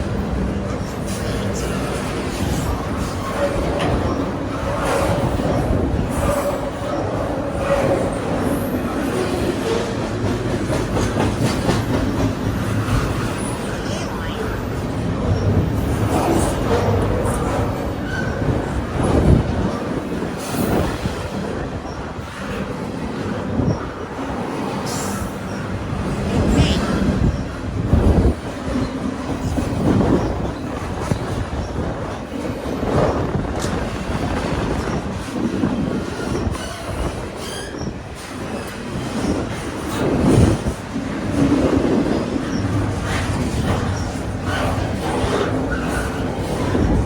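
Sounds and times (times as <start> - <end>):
train wheels rumbling on rail: 0.0 - 47.0
clacks over rail joints: 0.1 - 21.5
wheel squeal: 36.2 - 38.0.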